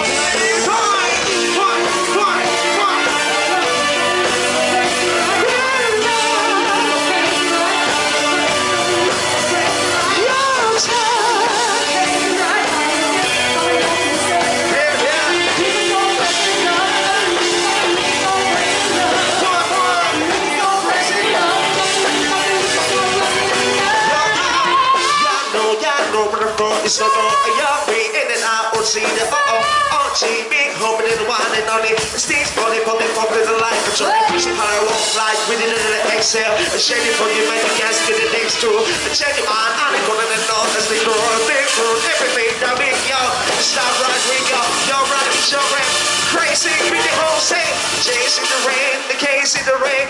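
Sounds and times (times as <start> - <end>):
band playing pop-rock song: 0.0 - 50.0
guitar: 0.0 - 50.0
person singing: 0.0 - 50.0.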